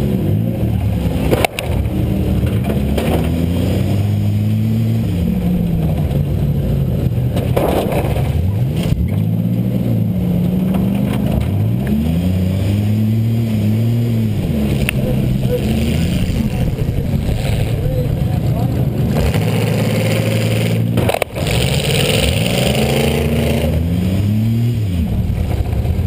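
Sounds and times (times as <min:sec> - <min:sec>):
car engine revving: 0:00.0 - 0:26.0
car impact crash: 0:07.3 - 0:08.4.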